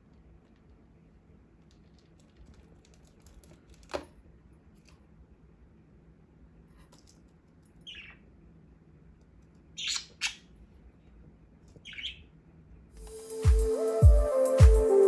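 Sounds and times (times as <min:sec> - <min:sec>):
budgerigar calls: 0:09.8 - 0:10.5, 0:11.8 - 0:12.2
music: 0:13.0 - 0:15.0.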